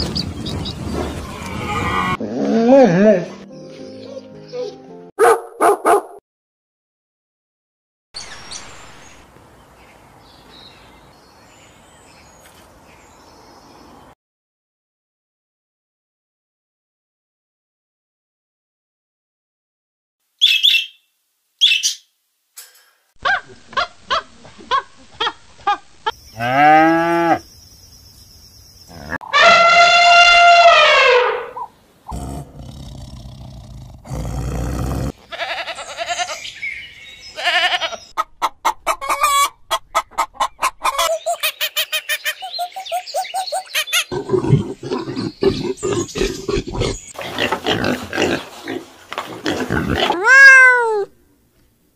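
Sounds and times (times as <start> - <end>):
outdoor background hiss: 8.2 - 14.1, 20.2 - 29.1, 31.5 - 38.2, 47.0 - 50.3, 50.9 - 51.9
sheep bleating: 35.2 - 36.4, 37.4 - 38.0.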